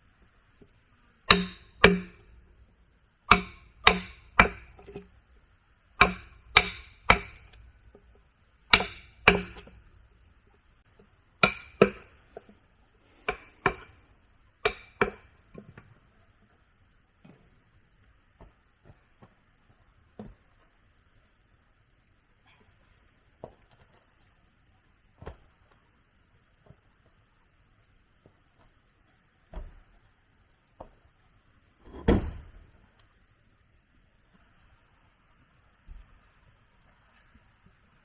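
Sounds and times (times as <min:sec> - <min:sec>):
tool striking wood: 0:01.3 - 0:02.6, 0:03.3 - 0:05.1, 0:06.0 - 0:08.1, 0:08.7 - 0:09.9, 0:11.4 - 0:12.4, 0:13.2 - 0:14.0, 0:14.6 - 0:15.3, 0:31.9 - 0:32.5.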